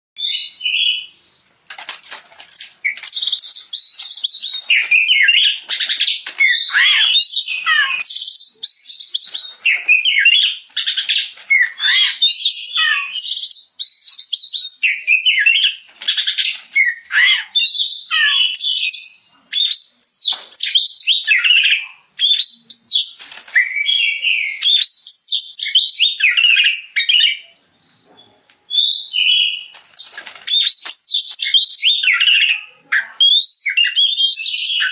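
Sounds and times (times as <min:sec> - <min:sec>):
songbird whistles and trills: 0:00.2 - 0:01.4, 0:02.6 - 0:34.9.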